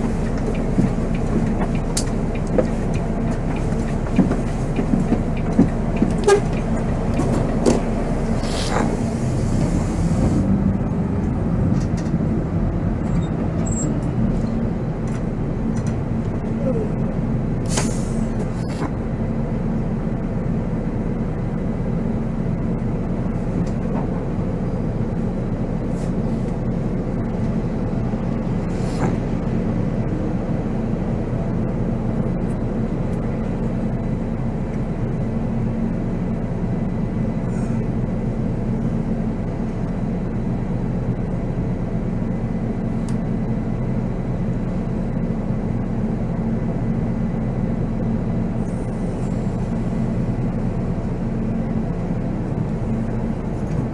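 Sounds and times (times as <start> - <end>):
diesel engine running: 0.0 - 53.9
road noise: 0.0 - 53.9.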